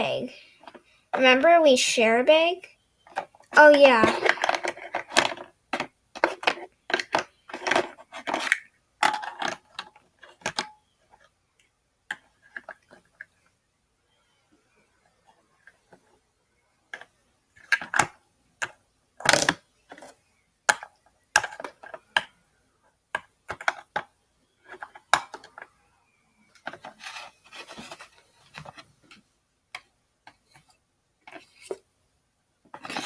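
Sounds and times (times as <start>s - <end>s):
plastic toys clicking and knocking: 3.0s - 13.4s, 16.9s - 25.8s, 26.5s - 31.8s, 32.7s - 33.0s
scraping and rustling: 26.7s - 29.2s.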